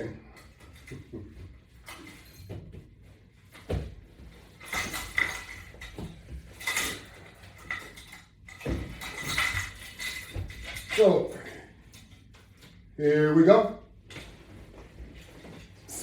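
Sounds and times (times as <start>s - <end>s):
clattery rattles: 4.4s - 12.8s
metal hardware clinking and knocking: 4.6s - 12.8s.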